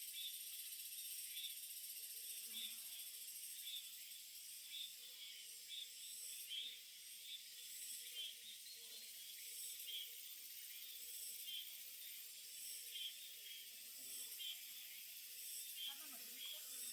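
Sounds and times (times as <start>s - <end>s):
small birds chirping: 1.2s - 16.9s.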